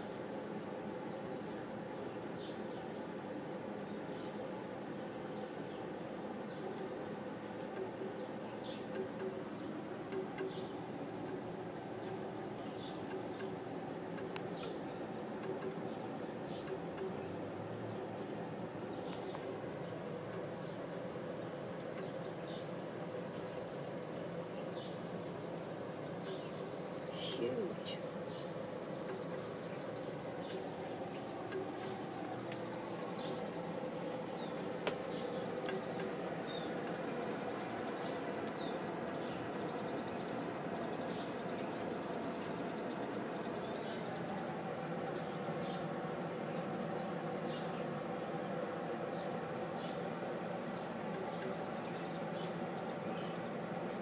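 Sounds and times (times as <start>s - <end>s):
low background hum: 0.0s - 54.0s
small birds chirping: 0.0s - 54.0s
steady background hiss: 0.0s - 54.0s
small bird chirping: 18.1s - 44.2s.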